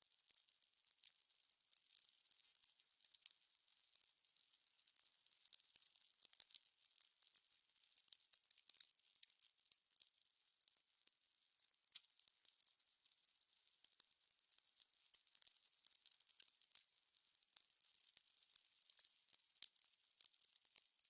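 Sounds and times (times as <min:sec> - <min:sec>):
fire crackling: 0:17.6 - 0:21.0.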